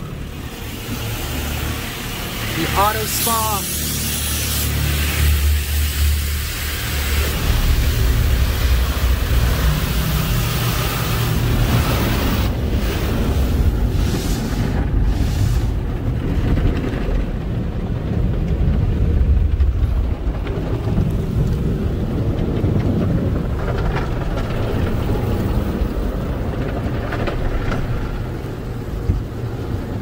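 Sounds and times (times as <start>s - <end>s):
rushing water spray: 0.0s - 16.3s
car wash equipment rumbling: 0.0s - 30.0s.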